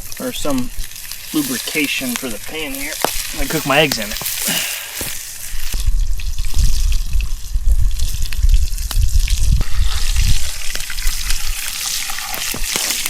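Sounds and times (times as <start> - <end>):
bacon sizzling in a pan: 0.0 - 13.0.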